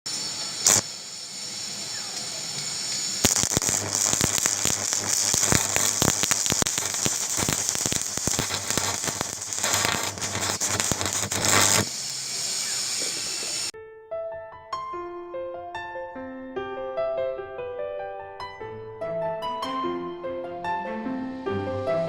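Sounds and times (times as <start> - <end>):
arc welder crackling: 0.1 - 13.7.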